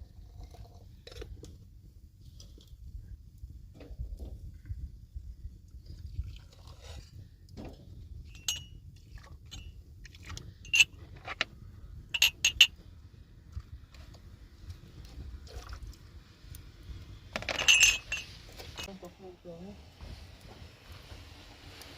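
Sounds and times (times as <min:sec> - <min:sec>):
hard objects clinking: 0:10.7 - 0:11.4, 0:12.2 - 0:12.8, 0:17.4 - 0:18.9.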